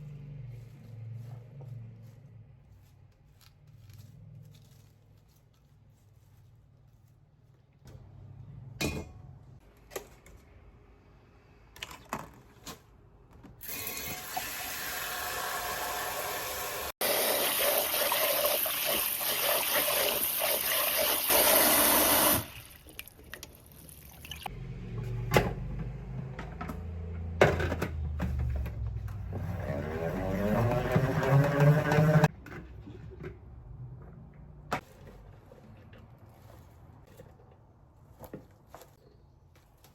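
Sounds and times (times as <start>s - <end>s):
water running from tap: 13.6s - 24.5s.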